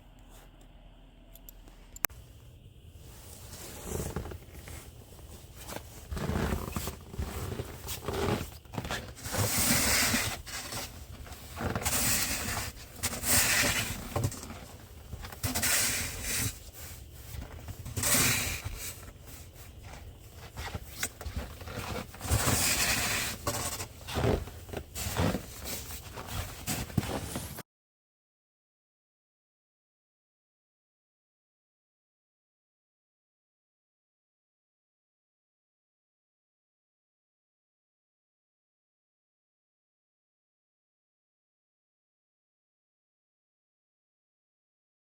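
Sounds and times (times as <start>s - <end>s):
snow crunching and scraping: 3.0s - 27.6s.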